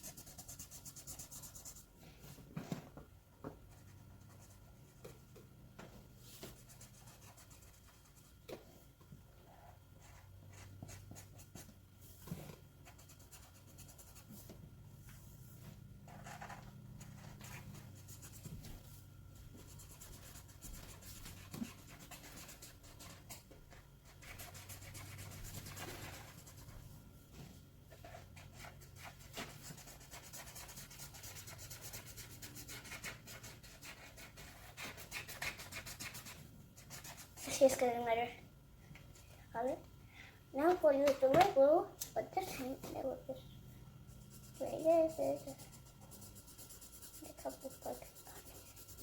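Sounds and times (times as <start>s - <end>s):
drawing tool scratching on paper: 0.0s - 1.8s, 19.6s - 26.8s, 28.0s - 37.8s, 44.1s - 49.0s.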